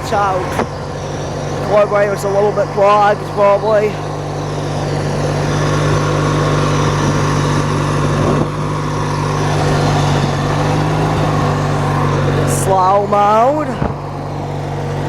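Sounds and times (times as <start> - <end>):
lawn tractor engine running: 0.0 - 15.0.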